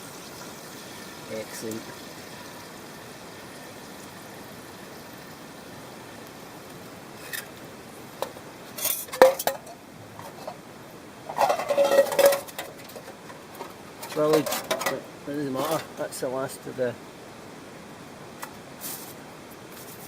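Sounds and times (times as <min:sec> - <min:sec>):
low hiss: 0:00.0 - 0:20.0
cookware clinking and knocking: 0:08.8 - 0:10.6, 0:11.3 - 0:13.1.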